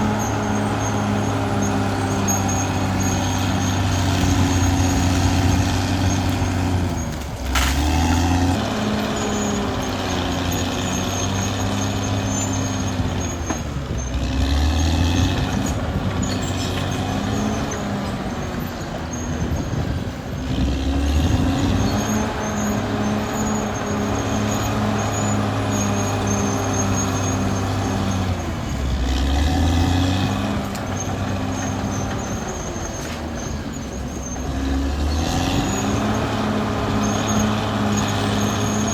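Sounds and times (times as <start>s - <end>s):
bulldozer diesel engine under load: 0.0s - 38.9s.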